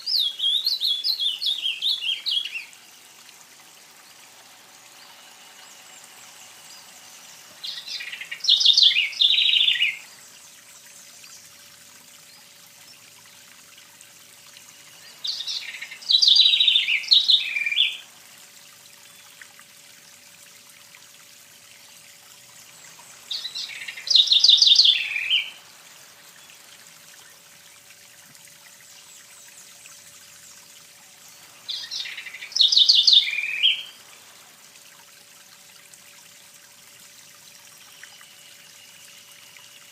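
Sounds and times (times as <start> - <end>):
songbird singing: 0.0 - 13.5, 14.5 - 18.1, 22.4 - 27.7, 28.8 - 34.4
faint steady hiss: 0.0 - 39.9.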